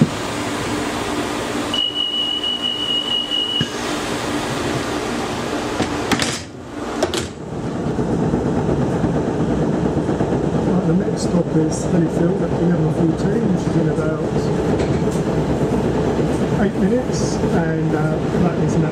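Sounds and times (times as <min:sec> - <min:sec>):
diesel train engine running: 0:00.0 - 0:18.9
high warning beep: 0:01.7 - 0:03.8.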